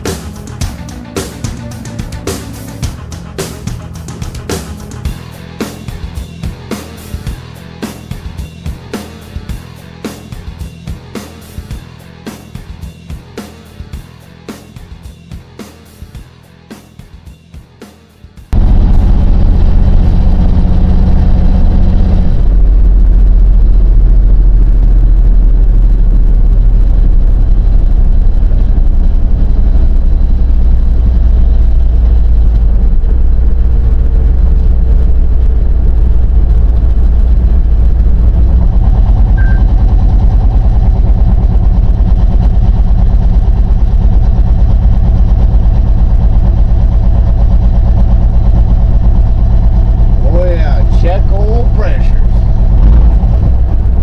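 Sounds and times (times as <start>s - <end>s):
pickup truck engine drone: 0.0s - 16.9s, 18.4s - 54.0s
road noise while driving: 27.3s - 54.0s.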